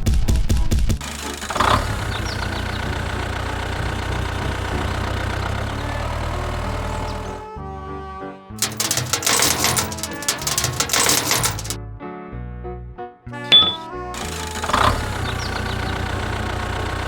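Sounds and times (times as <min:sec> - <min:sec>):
small engine idling: 0:01.0 - 0:07.4, 0:13.6 - 0:17.0
rapid loud clattering: 0:08.6 - 0:11.8.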